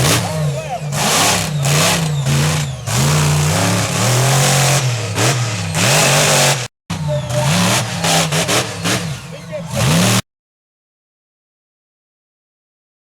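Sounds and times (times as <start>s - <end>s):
truck engine revving: 0.0s - 10.2s.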